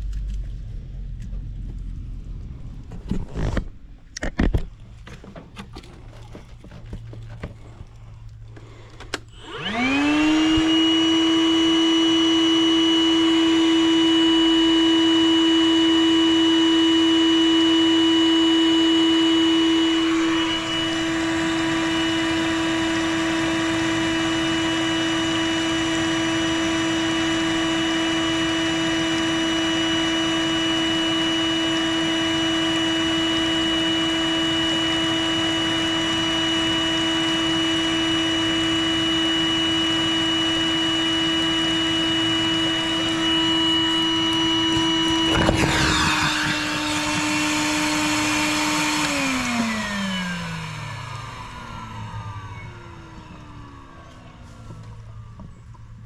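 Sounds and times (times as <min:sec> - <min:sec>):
shop vacuum motor whine: 0:08.4 - 0:56.0.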